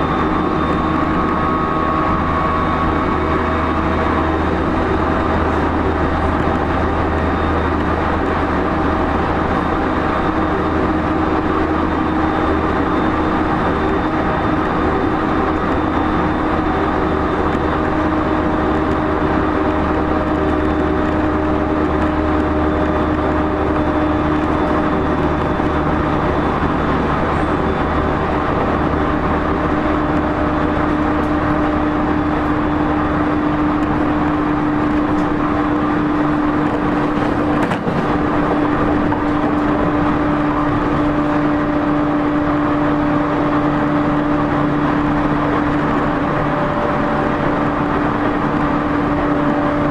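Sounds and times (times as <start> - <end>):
traction motors humming: 0.0 - 49.9
wheel and rail noise: 0.0 - 49.9.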